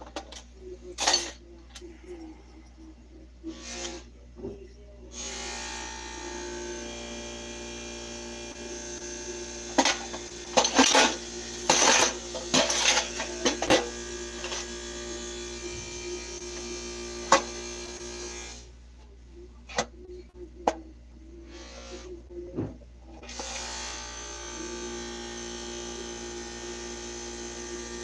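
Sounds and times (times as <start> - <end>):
small motor buzzing: 5.1 - 18.7, 23.2 - 28.0.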